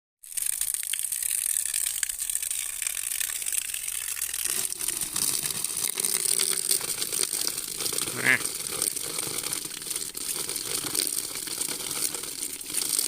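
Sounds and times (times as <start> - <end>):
stream water trickling: 0.2 - 13.0.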